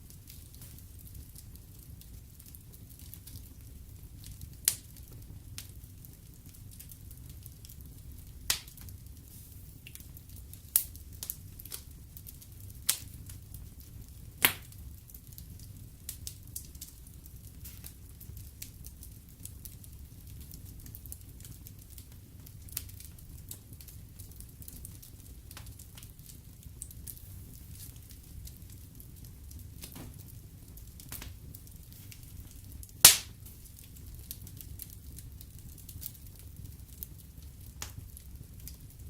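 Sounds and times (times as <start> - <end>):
fire crackling: 0.0 - 39.0
fire rumbling: 0.0 - 39.0
loud fire pops: 0.0 - 39.0.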